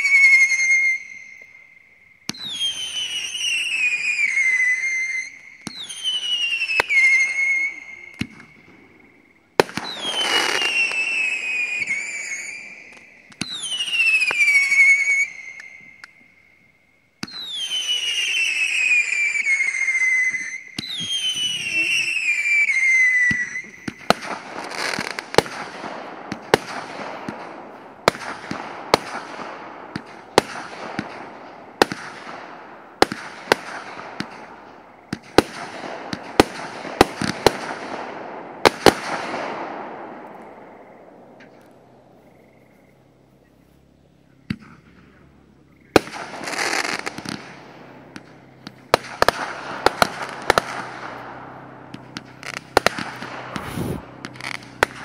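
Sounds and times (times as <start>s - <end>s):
firework whistles falling in pitch: 0.0s - 25.7s, 45.8s - 55.0s
firework bangs: 2.2s - 16.3s, 17.2s - 42.6s, 44.5s - 55.0s
firework crackling: 2.2s - 16.3s, 17.2s - 43.9s, 45.8s - 55.0s.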